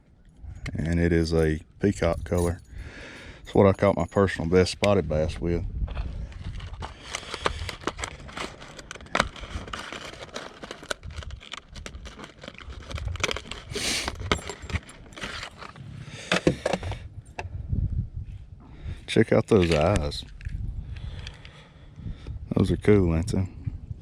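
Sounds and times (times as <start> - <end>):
plastic packaging crinkling: 6.4 - 15.8.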